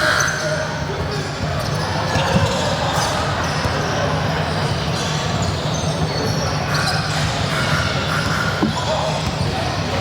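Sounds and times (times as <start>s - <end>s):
court and crowd noise: 0.0s - 10.0s
shoe squeaks: 0.3s - 7.3s.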